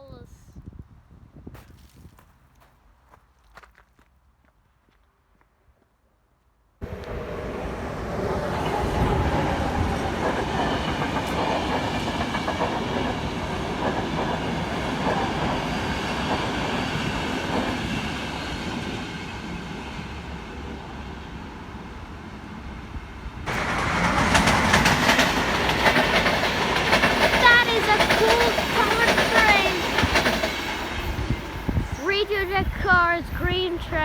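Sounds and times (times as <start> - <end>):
train passing on rails: 6.8 - 34.0.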